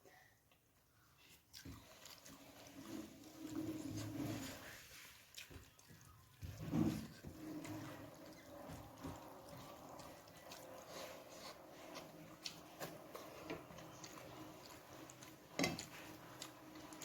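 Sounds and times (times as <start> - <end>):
soft chewing: 0.0 - 17.0.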